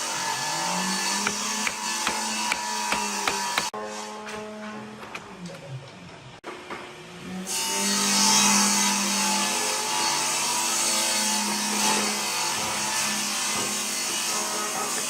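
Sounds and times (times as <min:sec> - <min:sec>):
power tool cutting wood: 0:00.0 - 0:04.1.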